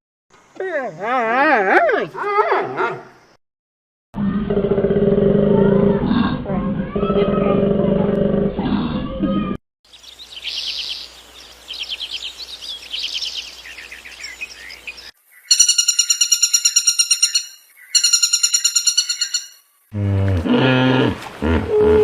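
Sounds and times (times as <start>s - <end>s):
animal chirping trills: 11.8s - 19.6s.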